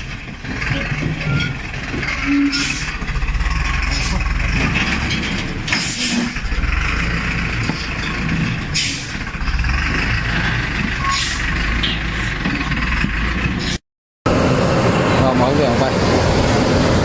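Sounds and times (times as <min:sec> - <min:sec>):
truck diesel engine rumbling: 0:00.0 - 0:17.0.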